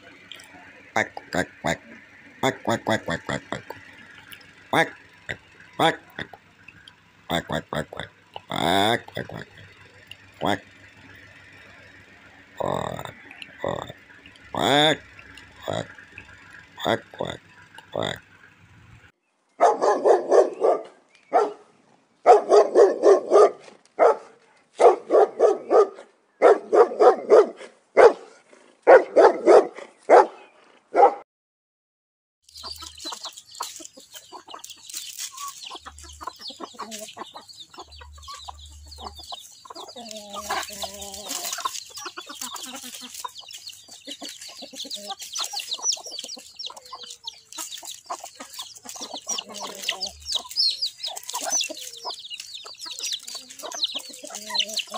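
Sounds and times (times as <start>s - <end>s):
chickens clucking: 0.0s - 19.1s, 32.5s - 54.9s
ducks quacking: 0.0s - 19.1s, 32.5s - 54.9s.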